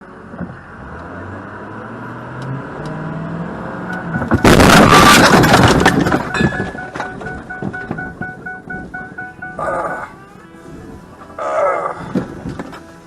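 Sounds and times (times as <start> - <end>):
car engine accelerating: 0.0 - 10.0
loud car crash: 4.0 - 8.2.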